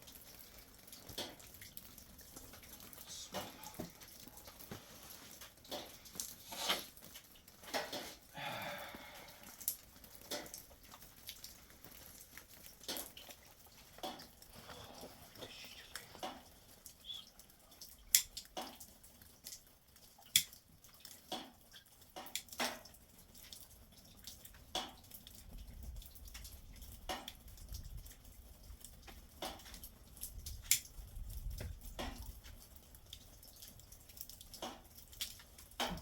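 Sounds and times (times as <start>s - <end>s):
sharp clicks and knocks: 34.5s - 36.0s.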